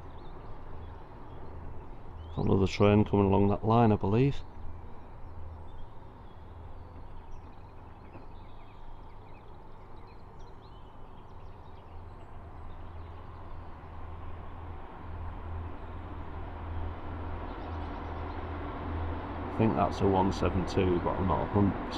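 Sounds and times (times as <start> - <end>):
small birds chirping: 0.0 - 18.8
distant train rumble: 12.0 - 21.9.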